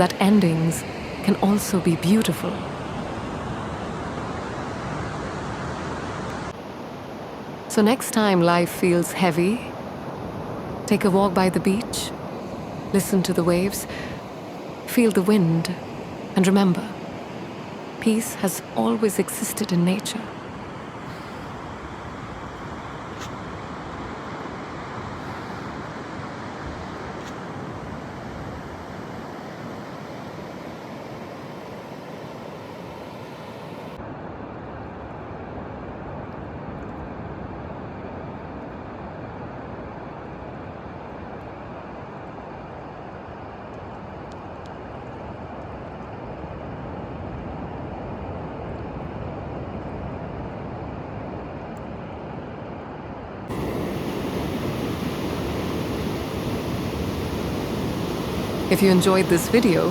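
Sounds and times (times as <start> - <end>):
ocean surf washing onto beach: 0.0 - 34.0, 53.3 - 59.9.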